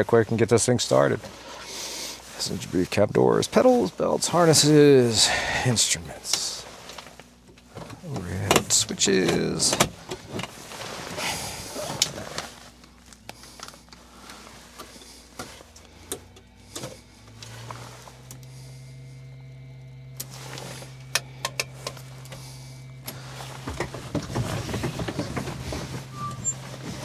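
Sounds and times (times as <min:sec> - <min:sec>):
electrical hum: 0:00.0 - 0:27.0
switches clicking: 0:21.0 - 0:22.4.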